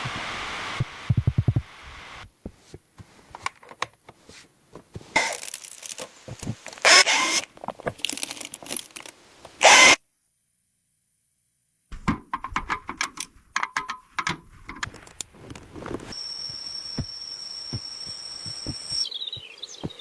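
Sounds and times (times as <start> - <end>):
rasping tearing noises: 5.1 - 10.0
clicks and taps: 12.0 - 15.3.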